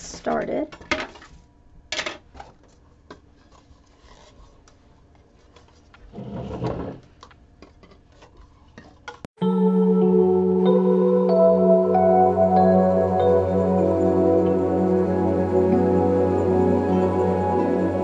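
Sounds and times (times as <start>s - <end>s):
rubbing scrape: 3.3s - 7.0s.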